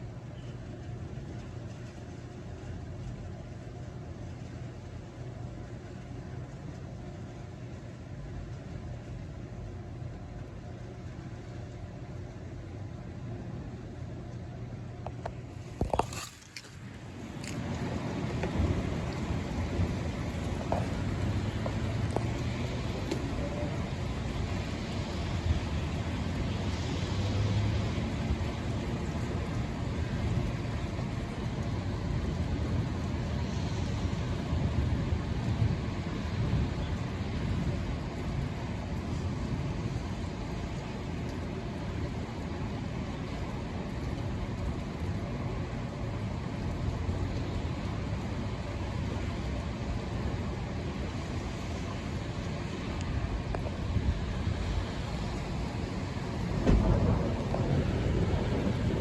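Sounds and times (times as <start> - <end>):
rain: 0.0 - 59.0
wind: 0.0 - 59.0
low rumble: 53.2 - 59.0.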